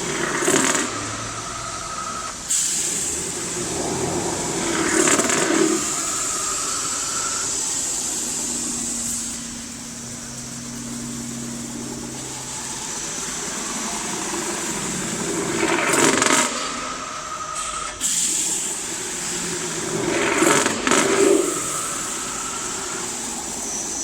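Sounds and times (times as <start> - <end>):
rushing noise swells: 0.0 - 17.8
machine high hum: 0.0 - 24.0.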